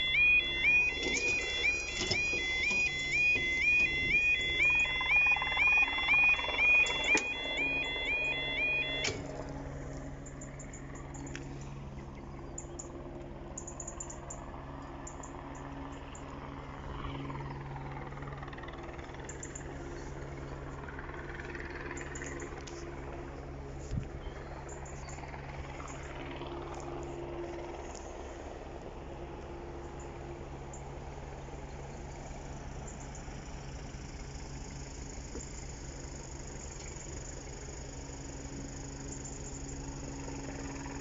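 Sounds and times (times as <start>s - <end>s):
level crossing alarm warbling: 0.0s - 9.4s
steady low hum: 0.0s - 41.0s.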